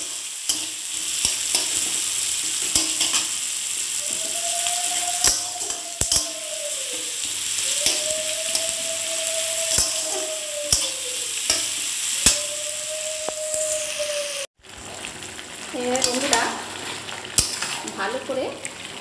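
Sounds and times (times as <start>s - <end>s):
metal spatula knocking pan: 0.0s - 3.4s, 5.1s - 6.4s, 7.8s - 8.8s, 9.7s - 12.5s
onions sizzling in oil: 0.0s - 19.0s.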